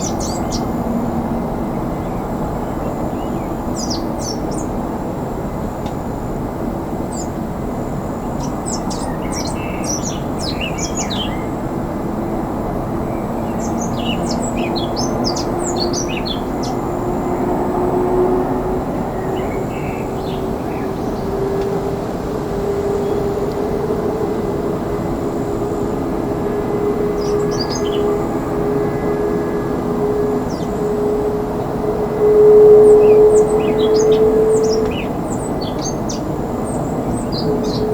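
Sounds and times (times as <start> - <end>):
small birds chirping: 0.0 - 0.8, 1.8 - 4.8, 7.1 - 11.6, 13.1 - 17.4, 32.8 - 37.9
jet engine roar: 0.0 - 37.9.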